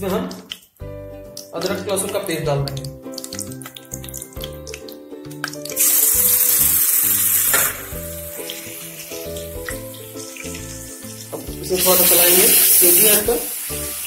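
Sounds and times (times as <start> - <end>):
background music: 0.0 - 14.0
paste sizzling in hot oil: 2.8 - 14.0.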